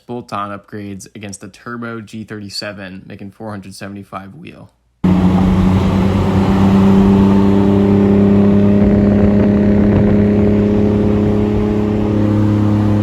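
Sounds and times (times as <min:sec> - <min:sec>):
car engine droning: 0:05.0 - 0:13.0.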